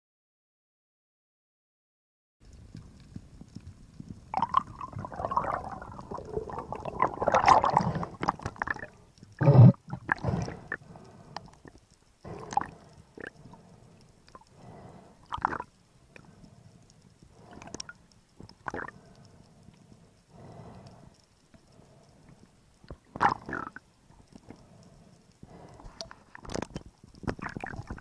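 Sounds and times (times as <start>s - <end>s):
underwater gurgling and bubbling: 2.5s - 19.3s, 22.9s - 23.8s, 25.5s - 28.0s.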